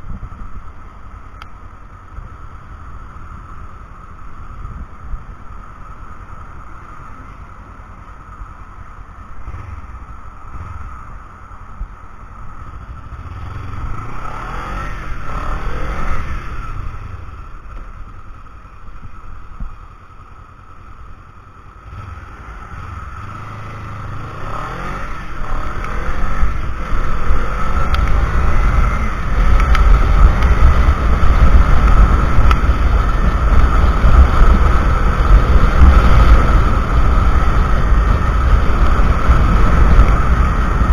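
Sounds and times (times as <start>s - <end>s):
motorcycle engine revving: 9.3s - 11.5s, 12.4s - 17.5s, 21.7s - 40.9s.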